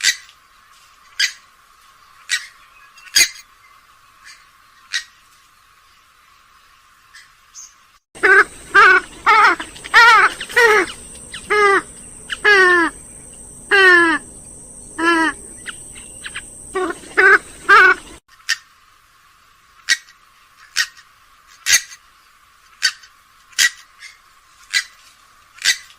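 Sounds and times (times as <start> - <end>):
swamphen calling: 7.2 - 18.6.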